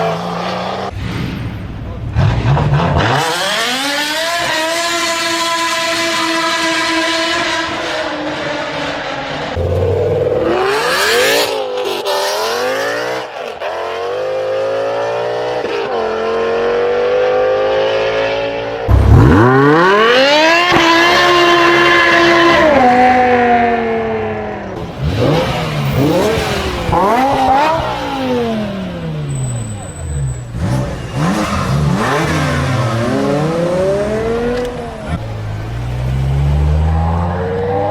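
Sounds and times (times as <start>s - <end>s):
engine revving: 2.2s - 29.3s, 30.2s - 37.9s
car engine accelerating: 15.4s - 37.9s.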